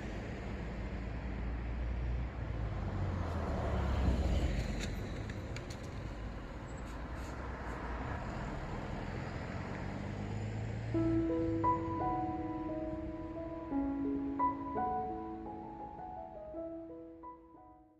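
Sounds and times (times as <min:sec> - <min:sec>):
road traffic rumble: 0:00.0 - 0:17.5
vehicle passing: 0:07.7 - 0:17.0.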